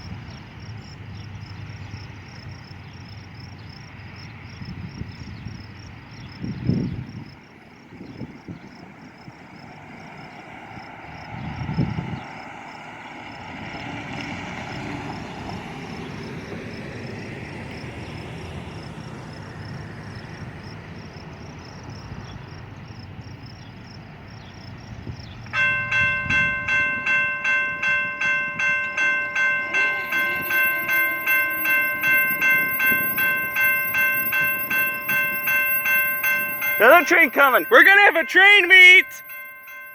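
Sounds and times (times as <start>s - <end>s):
railroad crossing bell ringing: 25.5s - 39.9s.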